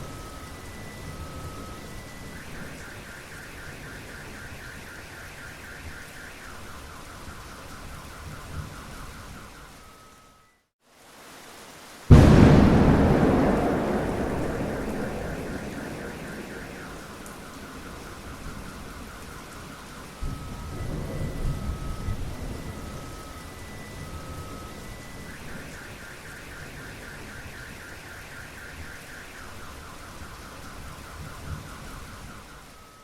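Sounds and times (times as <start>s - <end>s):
steady rain: 0.0s - 10.2s, 10.8s - 33.0s
car alarm: 0.4s - 6.7s, 12.1s - 33.0s
thunder rumbling: 12.1s - 18.9s.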